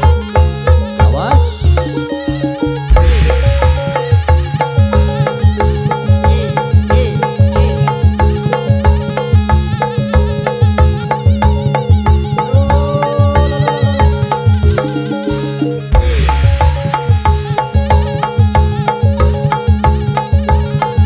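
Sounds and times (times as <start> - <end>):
electronic keyboard melody: 0.0 - 21.0
hand drums beat: 0.0 - 21.0
heavy low hit: 2.9 - 4.8, 16.0 - 17.4.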